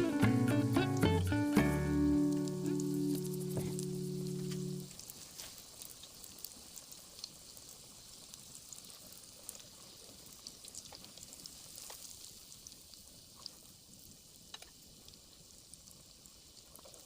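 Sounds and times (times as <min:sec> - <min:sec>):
crackles and pops of frying: 0:00.0 - 0:17.0
oil sizzling: 0:00.0 - 0:17.0.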